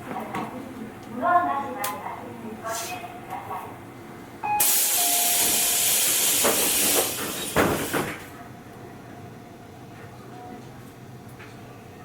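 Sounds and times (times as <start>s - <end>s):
train air system hissing: 4.6s - 8.2s
train doors thudding shut: 4.6s - 8.3s.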